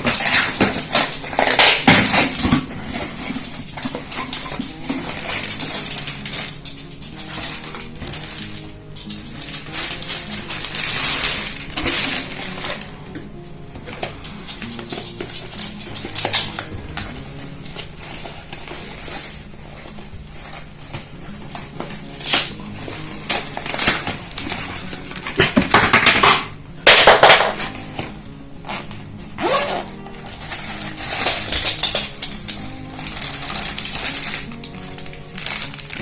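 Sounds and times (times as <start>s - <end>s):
small items clicking and clattering: 0.0s - 12.9s, 30.2s - 36.0s
plastic packaging crinkling: 0.0s - 36.0s.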